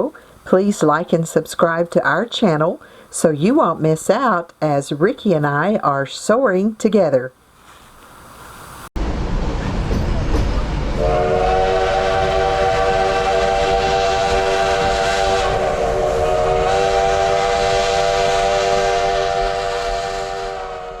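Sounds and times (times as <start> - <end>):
steam hissing: 8.2 - 21.0
steam locomotive whistle: 10.9 - 21.0.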